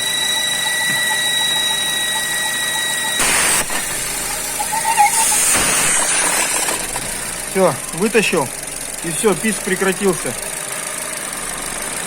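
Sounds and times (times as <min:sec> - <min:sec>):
high whistle from engine: 0:00.0 - 0:06.9
car engine idling: 0:00.0 - 0:12.0.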